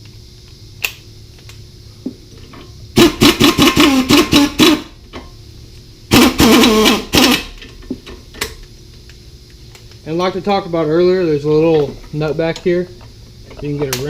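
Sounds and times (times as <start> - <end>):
impact wrench hammering: 3.0 - 4.9, 6.1 - 7.5.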